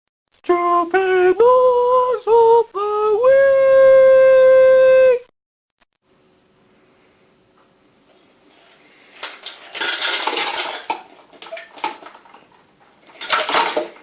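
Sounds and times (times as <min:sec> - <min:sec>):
person singing unaccompanied: 0:00.4 - 0:05.3.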